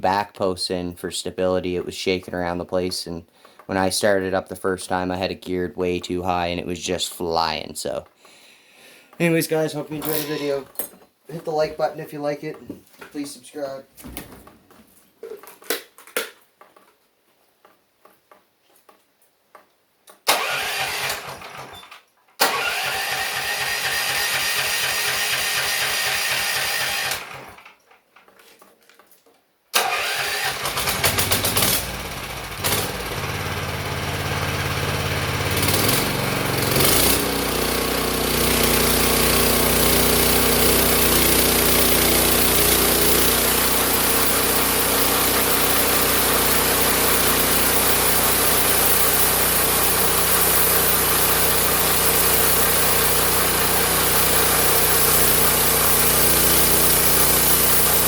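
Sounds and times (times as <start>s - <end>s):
small engine running: 22.5s - 27.6s, 29.9s - 58.0s.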